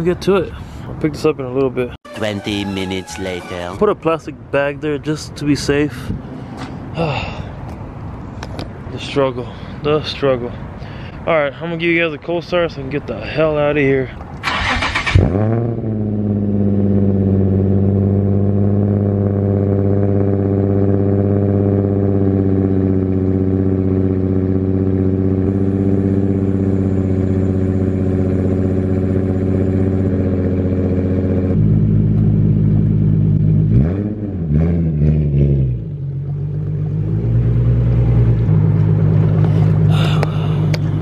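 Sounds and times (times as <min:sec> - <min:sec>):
car engine revving: 0:14.4 - 0:41.0
car engine idling fast: 0:38.0 - 0:41.0.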